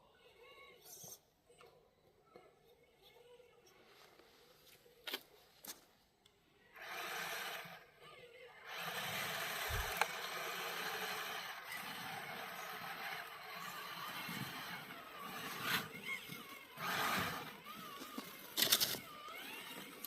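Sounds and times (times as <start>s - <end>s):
small electric motor whirring: 6.8s - 8.0s, 8.6s - 20.0s.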